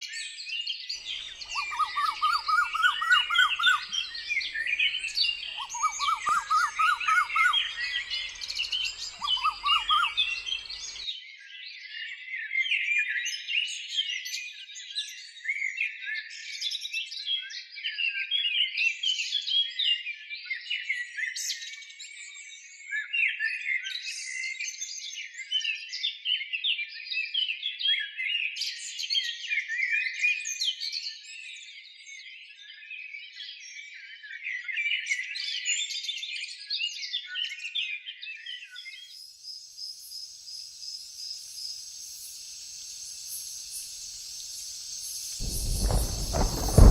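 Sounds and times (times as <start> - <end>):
birds chirping and twittering: 1.0 - 11.0, 39.1 - 46.9
low rapid repeated bird notes: 1.2 - 11.0, 43.0 - 46.9.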